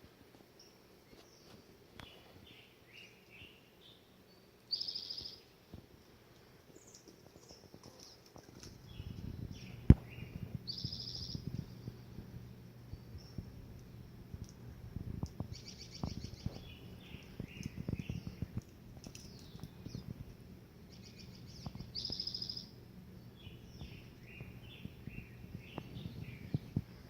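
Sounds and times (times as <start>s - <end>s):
steady low hum: 0.0s - 27.0s
small birds chirping: 0.5s - 5.7s, 6.3s - 27.0s
bird trills: 4.7s - 5.4s, 15.5s - 18.4s, 20.9s - 22.8s.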